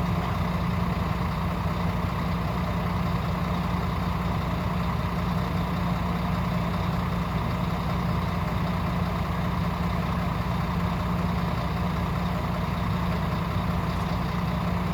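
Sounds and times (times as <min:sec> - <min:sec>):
diesel truck engine running: 0:00.0 - 0:14.9.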